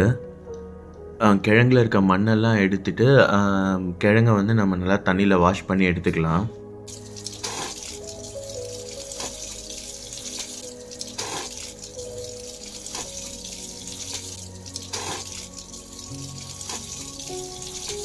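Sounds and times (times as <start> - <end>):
soft background music: 0.0 - 18.0
water running and splashing: 6.9 - 18.0.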